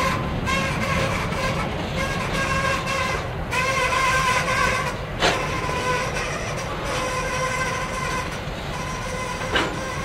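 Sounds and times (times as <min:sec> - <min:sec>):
freight cars rumbling on rails: 0:00.0 - 0:10.0
high squeal from train wheels: 0:00.0 - 0:10.0
metallic clunk: 0:09.5 - 0:09.8.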